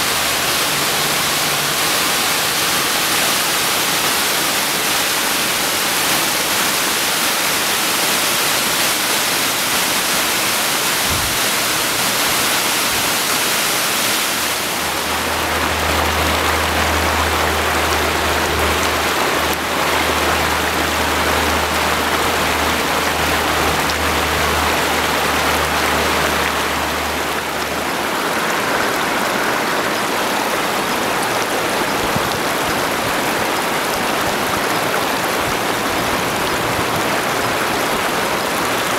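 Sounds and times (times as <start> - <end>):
rain: 0.0 - 38.9
rushing floodwater: 0.0 - 38.9.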